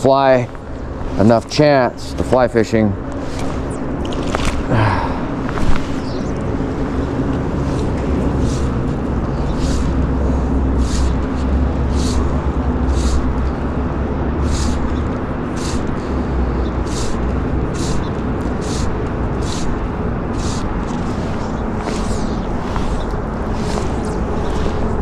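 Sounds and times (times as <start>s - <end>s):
wind: 0.0s - 25.0s
soft high swish: 20.4s - 25.0s.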